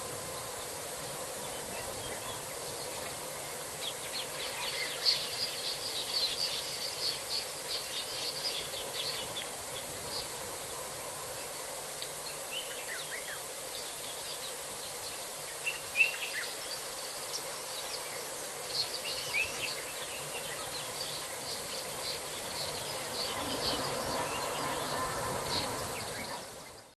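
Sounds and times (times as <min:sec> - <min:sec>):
insects buzzing: 0:00.0 - 0:26.9
bird chirps and calls: 0:18.8 - 0:26.9.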